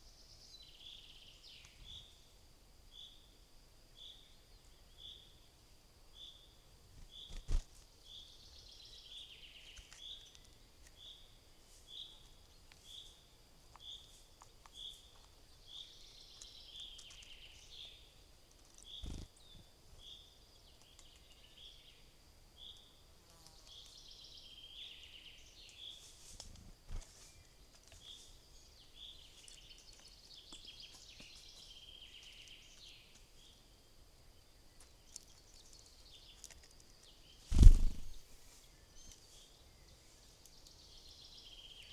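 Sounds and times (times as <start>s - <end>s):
birds chirping: 37.5s - 38.4s.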